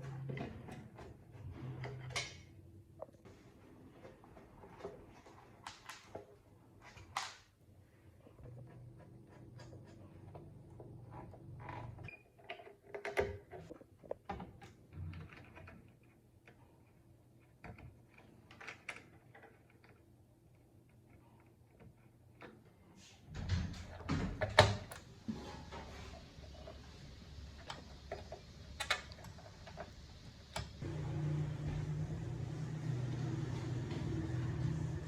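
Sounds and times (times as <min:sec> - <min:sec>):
low hum: 0:30.5 - 0:35.0.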